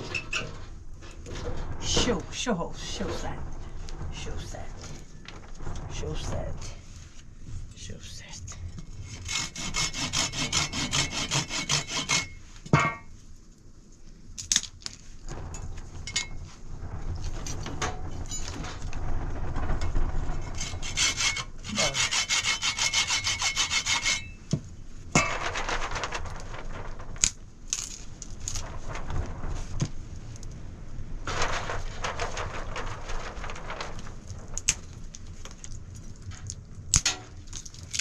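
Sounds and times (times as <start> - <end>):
knocks and rasping: 0.0 - 7.6, 8.5 - 13.2, 15.3 - 30.6, 31.3 - 38.0
saw cutting wood: 9.1 - 12.4, 20.6 - 24.4.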